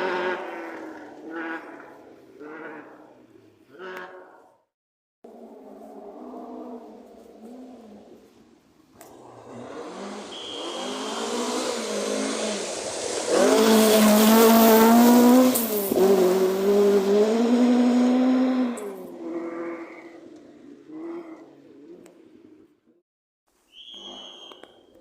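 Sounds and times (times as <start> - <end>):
rally car engine passing at high revs: 0.0 - 2.8, 9.0 - 22.6.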